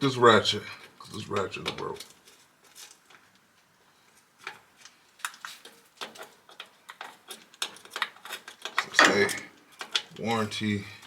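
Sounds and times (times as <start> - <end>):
hand tools clicking and clinking: 5.6 - 10.2.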